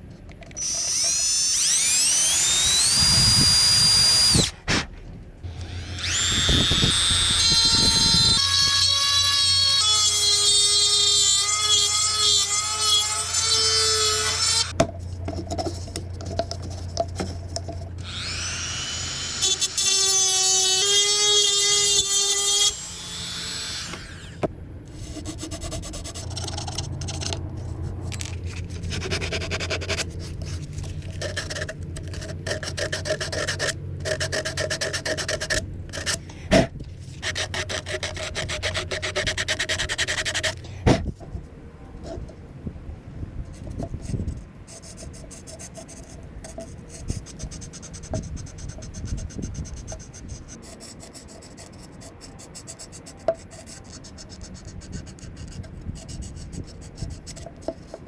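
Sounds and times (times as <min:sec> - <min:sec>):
tool scraping spinning wood: 0:00.5 - 0:42.4
lathe motor hum: 0:00.6 - 0:04.5, 0:05.4 - 0:09.6, 0:18.0 - 0:19.8.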